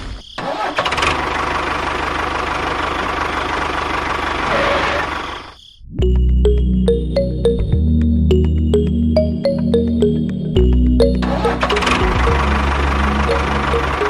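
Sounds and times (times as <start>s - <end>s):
background music: 6.0s - 14.0s.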